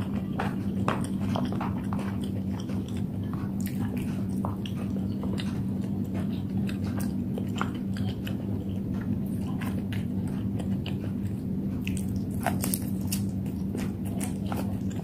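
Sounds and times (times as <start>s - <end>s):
chewing with wet smacks: 0.0s - 15.0s
steady low hum: 0.0s - 15.0s.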